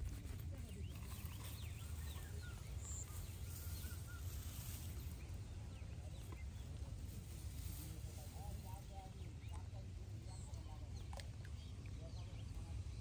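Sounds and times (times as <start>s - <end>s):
faint bird chirps: 0.6s - 6.8s.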